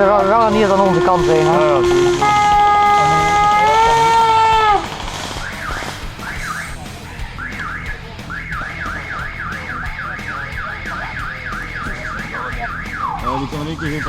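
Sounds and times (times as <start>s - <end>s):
loud horn-like tone: 0.0s - 4.9s
electronic alarm warbling: 0.0s - 6.8s, 7.4s - 14.0s.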